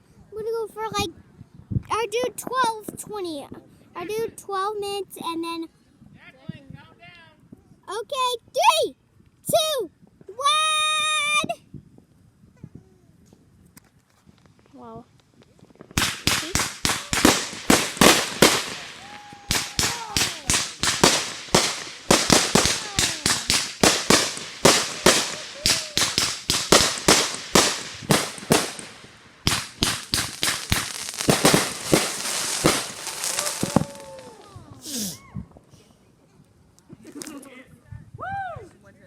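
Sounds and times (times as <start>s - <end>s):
fireworks banging: 15.4s - 35.0s.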